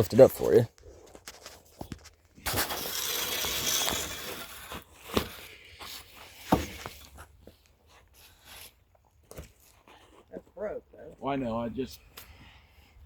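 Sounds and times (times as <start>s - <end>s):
scraping and crunching: 0.4s - 10.3s.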